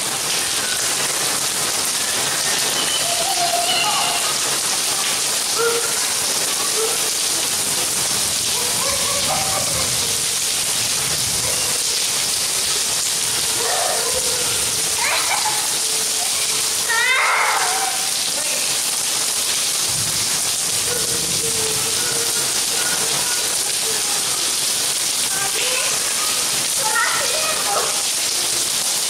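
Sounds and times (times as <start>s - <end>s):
rain on wet paving: 0.0s - 29.0s
faint voices: 2.6s - 18.9s, 20.7s - 28.8s.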